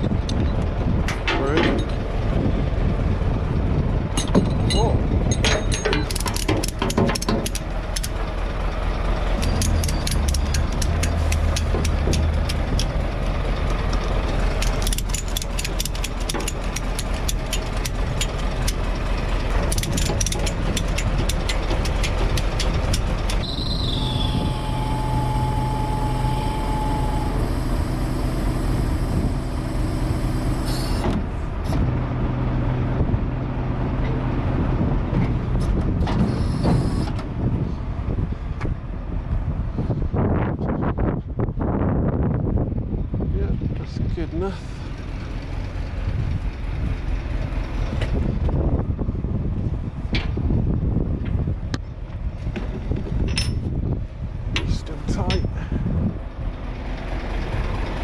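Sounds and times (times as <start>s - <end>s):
truck engine running: 0.0s - 58.0s
steady machine hum: 5.0s - 31.6s
ratchet clicks: 5.7s - 8.2s, 9.4s - 13.0s, 14.6s - 18.8s, 19.4s - 23.4s
brief high tone: 23.4s - 28.3s.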